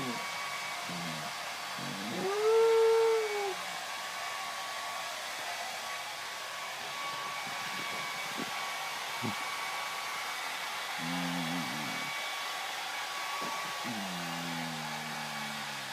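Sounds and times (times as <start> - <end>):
dog howling: 0.0 - 0.2, 0.8 - 3.7, 11.0 - 12.1, 13.8 - 15.9
hair dryer running: 0.0 - 15.9.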